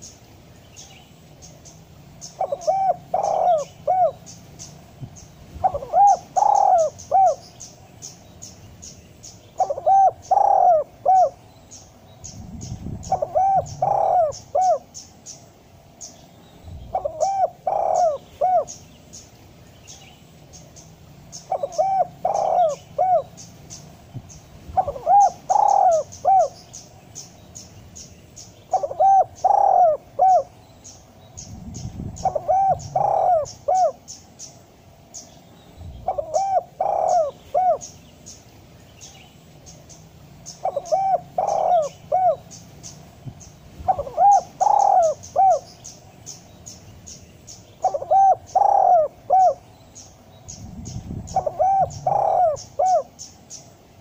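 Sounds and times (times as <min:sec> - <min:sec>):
dove cooing: 0:02.3 - 0:04.6, 0:05.6 - 0:07.6, 0:09.5 - 0:11.4, 0:12.5 - 0:15.2, 0:16.9 - 0:18.9, 0:21.4 - 0:23.8, 0:24.7 - 0:26.6, 0:28.7 - 0:30.6, 0:31.5 - 0:34.2, 0:36.0 - 0:38.0, 0:40.5 - 0:42.6, 0:43.8 - 0:45.9, 0:47.8 - 0:49.6, 0:50.6 - 0:53.3.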